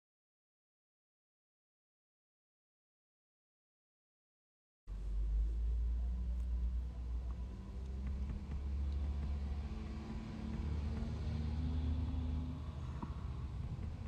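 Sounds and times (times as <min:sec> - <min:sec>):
car engine running: 0:04.9 - 0:14.0.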